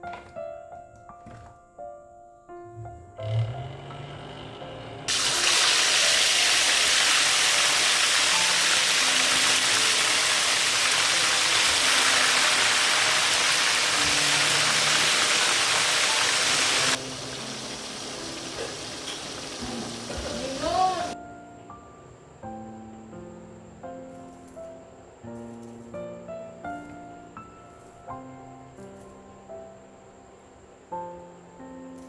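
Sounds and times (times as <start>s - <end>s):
loud rushing hiss: 5.1s - 21.2s
faint background music: 13.5s - 32.0s.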